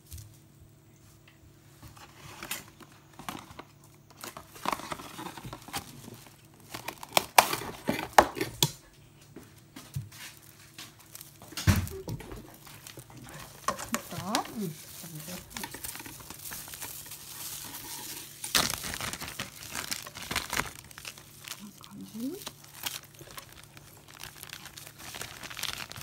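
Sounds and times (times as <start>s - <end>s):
crinkling and tearing rustles: 1.8s - 8.8s, 9.5s - 26.0s.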